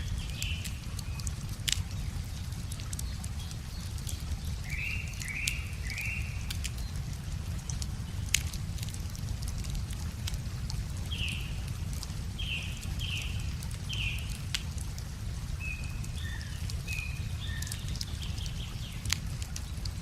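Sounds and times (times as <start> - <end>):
wood fire crackling and popping: 0.0 - 20.0
bird singing: 4.6 - 6.9, 15.6 - 19.0.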